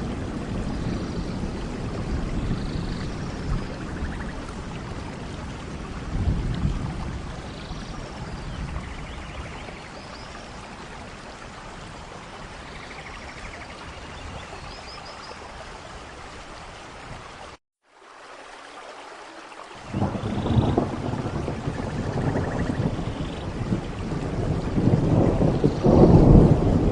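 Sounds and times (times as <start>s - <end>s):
low thunder rumble: 0.0s - 9.9s, 19.9s - 26.9s
steady rain: 0.0s - 26.9s.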